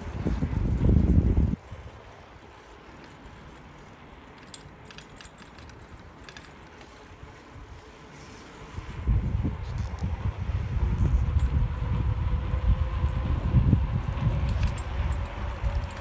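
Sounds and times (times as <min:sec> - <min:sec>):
wind rumbling on microphone: 0:00.0 - 0:02.1, 0:08.6 - 0:16.0.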